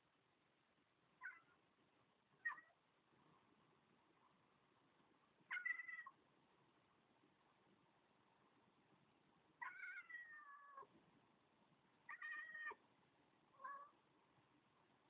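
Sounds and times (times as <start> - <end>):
cat meowing: 1.2 - 1.6, 2.4 - 2.8, 5.5 - 6.2, 9.6 - 10.9, 12.1 - 12.8, 13.6 - 14.0.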